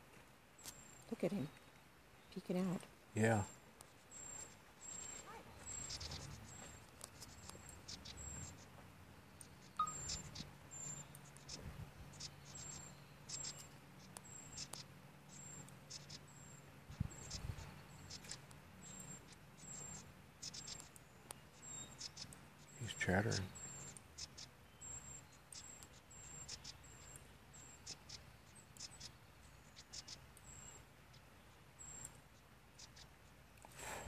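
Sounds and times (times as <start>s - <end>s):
bird chattering: 4.2s - 8.7s, 9.6s - 21.0s, 21.6s - 30.8s.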